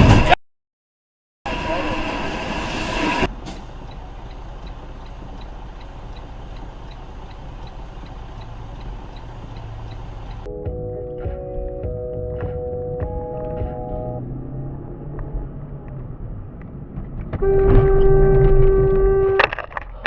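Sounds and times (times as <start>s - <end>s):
loud rushing noise: 1.5s - 3.6s
car cabin road and engine hum: 2.8s - 20.0s
turn signal ticking: 3.3s - 10.5s.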